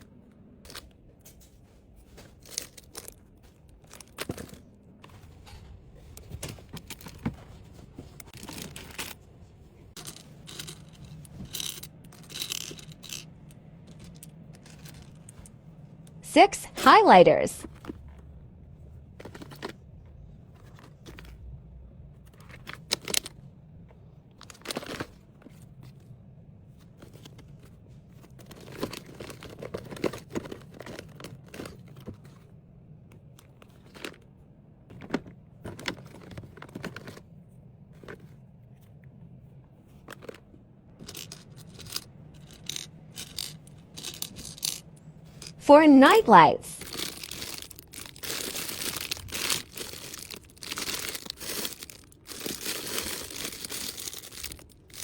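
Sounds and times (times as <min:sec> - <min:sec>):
plastic packaging crinkling: 0:46.8 - 0:55.0.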